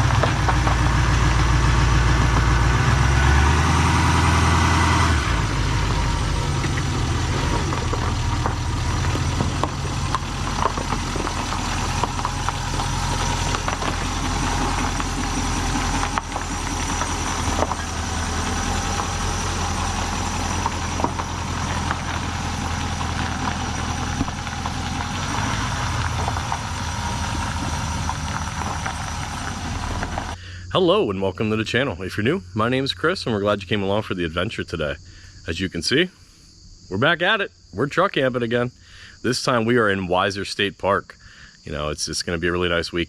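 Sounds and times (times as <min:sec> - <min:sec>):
knocks and rattles: 0:00.0 - 0:02.8, 0:05.4 - 0:30.4
truck engine running: 0:00.0 - 0:30.6.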